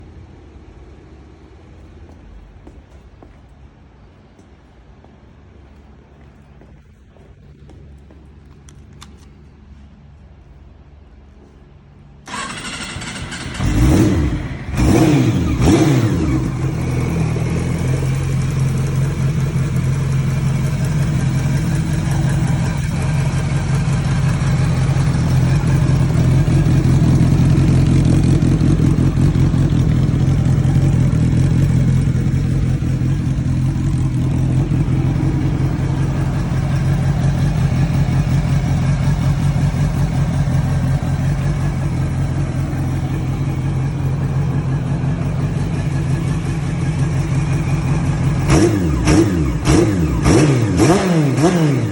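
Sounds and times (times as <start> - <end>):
motorcycle engine revving and idling: 12.3 - 51.9.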